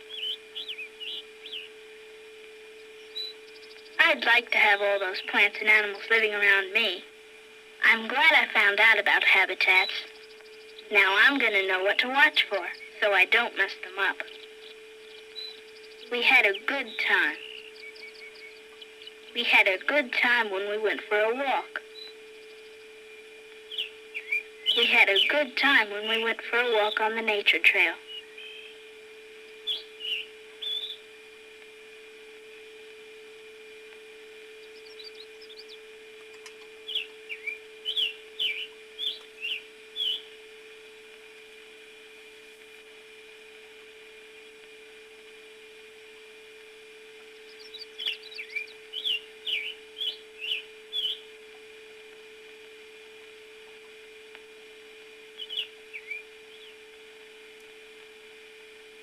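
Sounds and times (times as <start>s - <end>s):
steady low hum: 0.0s - 59.0s
bird chirps and whistles: 0.1s - 1.7s, 29.6s - 31.0s, 36.8s - 40.3s, 47.6s - 51.2s, 55.4s - 56.7s.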